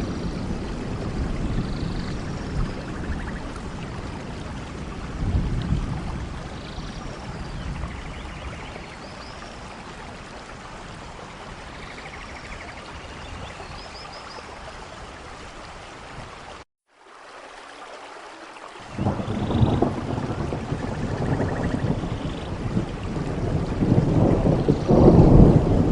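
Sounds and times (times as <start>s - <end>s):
rain falling: 0.0s - 25.9s
running water: 0.0s - 25.9s.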